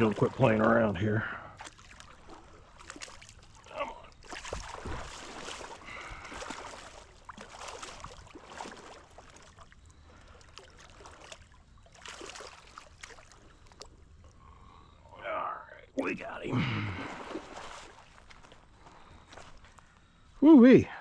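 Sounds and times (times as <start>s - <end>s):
water splashing from thrashing fish: 0.0s - 0.8s, 1.4s - 14.0s, 16.8s - 19.6s.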